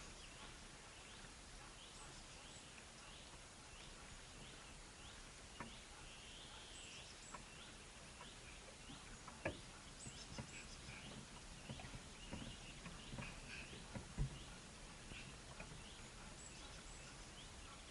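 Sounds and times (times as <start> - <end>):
small birds chirping: 0.0 - 17.9.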